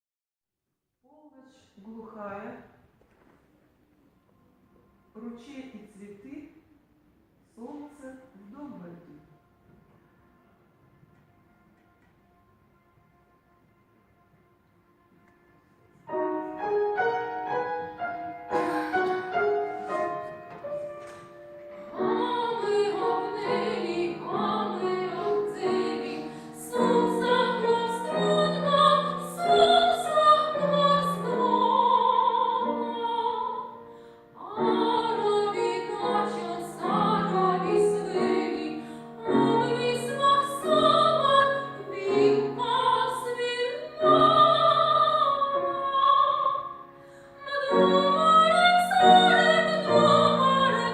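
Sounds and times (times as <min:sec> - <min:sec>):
piano accompaniment: 0:08.5 - 0:50.9
woman singing operatically: 0:22.1 - 0:33.8, 0:34.4 - 0:46.8, 0:47.4 - 0:50.9.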